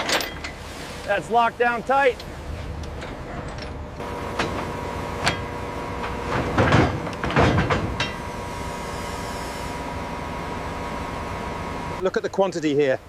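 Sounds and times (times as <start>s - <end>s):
metal rattling clatter: 0.0s - 0.8s, 2.6s - 8.3s
machinery hum: 0.0s - 13.0s
metal knocks: 2.8s - 8.3s.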